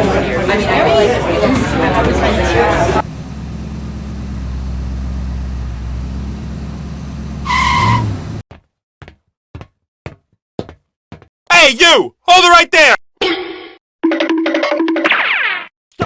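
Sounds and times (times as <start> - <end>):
small engine humming: 0.0 - 8.4.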